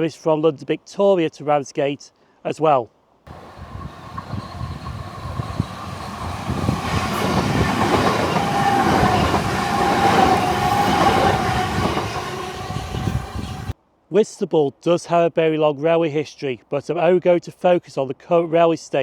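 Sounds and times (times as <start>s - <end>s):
steady train whine: 3.3s - 13.8s
train rumble and wheel clatter: 3.3s - 13.8s.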